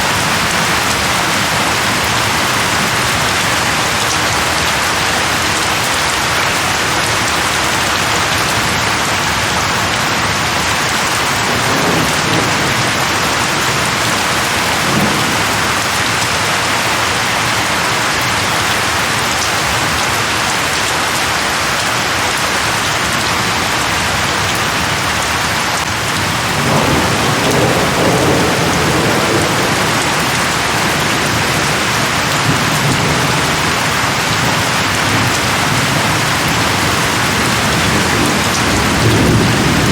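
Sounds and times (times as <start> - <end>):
thunder rumbling: 0.0 - 5.8, 10.2 - 17.6, 24.4 - 39.9
heavy rain falling: 0.0 - 39.9.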